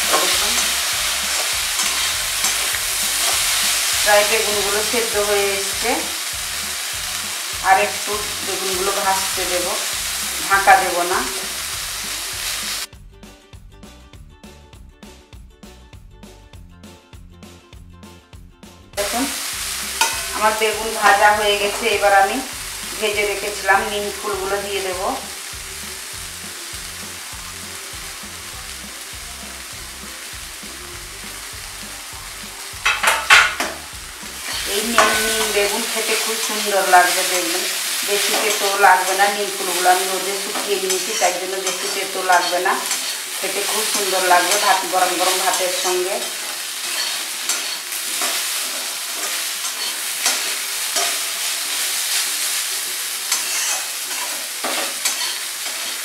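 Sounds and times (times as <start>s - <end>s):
metal spatula scraping a pan: 0.0s - 5.4s, 19.9s - 22.0s, 32.8s - 52.6s, 53.2s - 56.0s
eggplant sizzling in oil: 0.0s - 12.9s, 19.0s - 56.0s.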